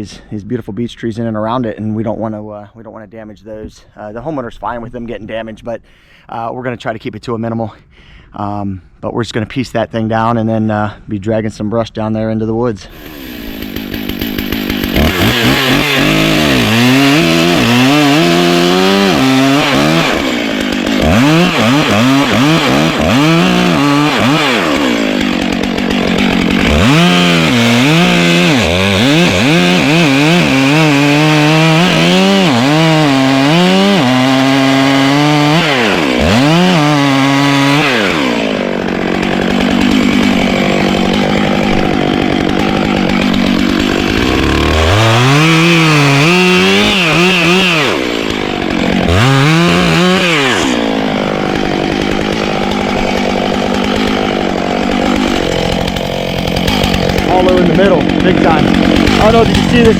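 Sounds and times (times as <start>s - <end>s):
chainsaw cutting wood: 12.9s - 59.9s.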